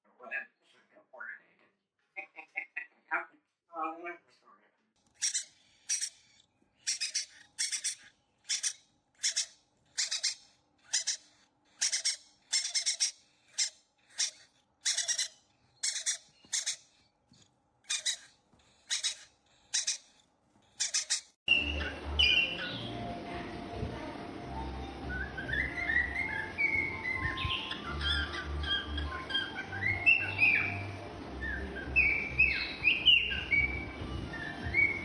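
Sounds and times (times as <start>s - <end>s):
parrot harsh calls: 5.1s - 16.9s, 17.8s - 20.2s, 20.8s - 22.9s.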